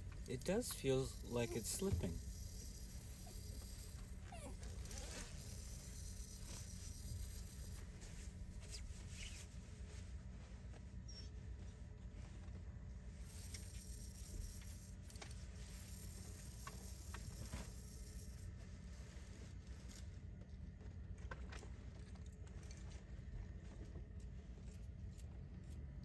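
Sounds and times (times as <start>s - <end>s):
low room hum: 0.0s - 26.0s
clockwork toy clicking and rattling: 0.1s - 7.8s, 13.3s - 18.4s.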